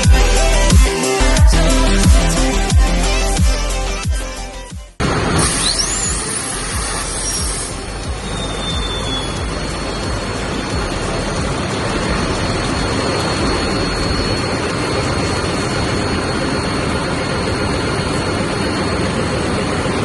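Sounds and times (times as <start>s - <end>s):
diesel generator engine running: 0.0s - 20.0s
thin high whine: 5.3s - 20.0s.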